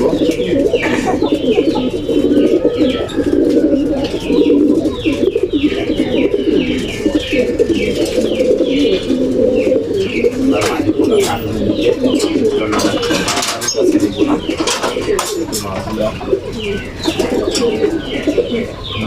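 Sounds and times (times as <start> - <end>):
pigeons cooing: 0.0 - 19.0
high falling chirps: 10.9 - 12.6.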